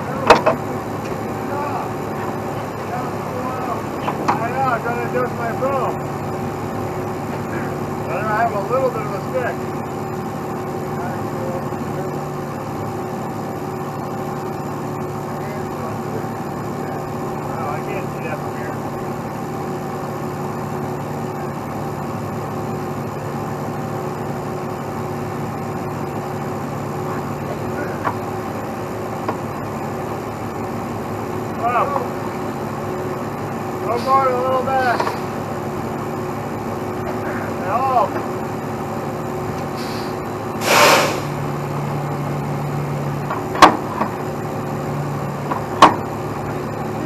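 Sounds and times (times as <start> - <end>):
truck diesel engine running: 0.0 - 47.0
burst of hiss: 39.8 - 41.4.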